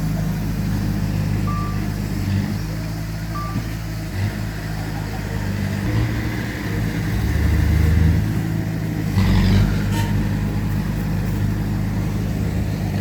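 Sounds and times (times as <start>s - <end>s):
heavy machinery diesel engines: 0.0s - 13.0s.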